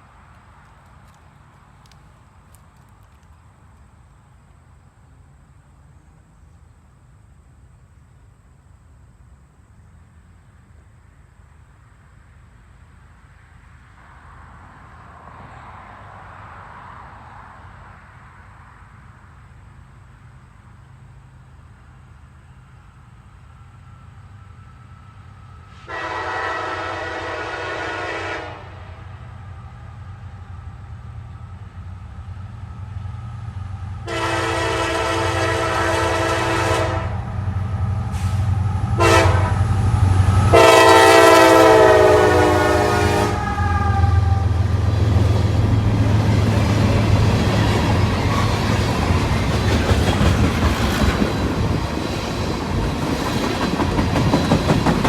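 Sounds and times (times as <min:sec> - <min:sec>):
locomotive horn blasts: 0:25.8 - 0:28.9, 0:34.0 - 0:37.3, 0:39.0 - 0:39.8, 0:40.5 - 0:44.6
train wheels clattering over rails: 0:44.6 - 0:55.0.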